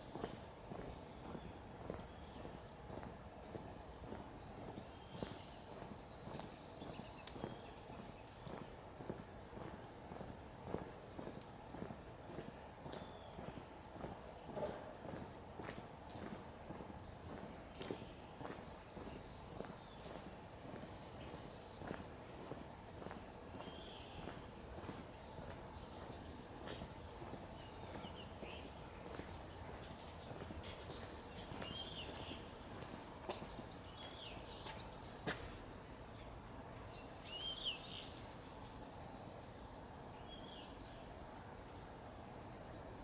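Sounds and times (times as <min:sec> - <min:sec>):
footsteps: 0:08.5 - 0:35.7.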